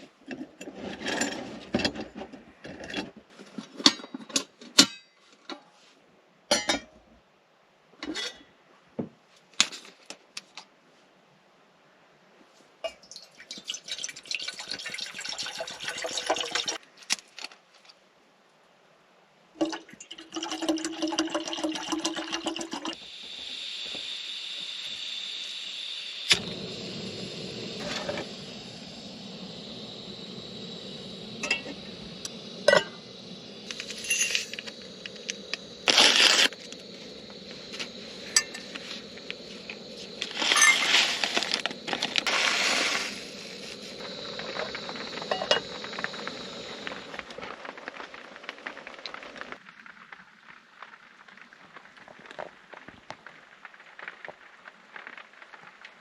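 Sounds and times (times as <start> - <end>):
water pouring: 12.9 - 16.8, 19.6 - 50.4
gas stove burner hissing: 20.4 - 49.5.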